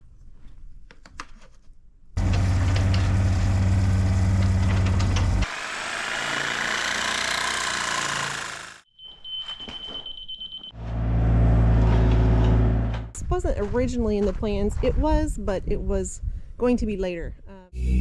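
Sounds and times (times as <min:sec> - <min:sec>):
engine low rumble: 0:02.2 - 0:05.4, 0:10.8 - 0:13.1, 0:17.8 - 0:18.0.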